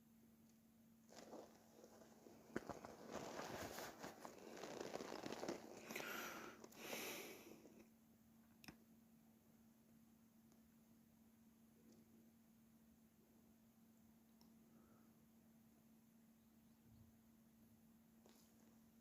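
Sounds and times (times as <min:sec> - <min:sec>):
faint rustling and crunching: 0:01.0 - 0:07.8, 0:18.2 - 0:18.9.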